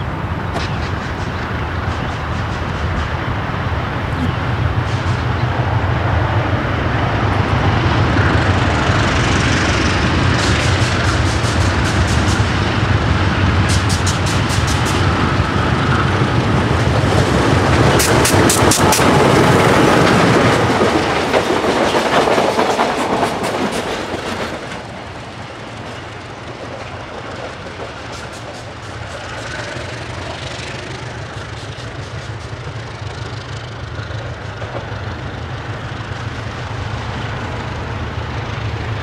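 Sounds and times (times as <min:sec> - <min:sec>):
diesel engine drone: 0:00.0 - 0:20.8
wheels clicking over rail joints: 0:07.2 - 0:39.0.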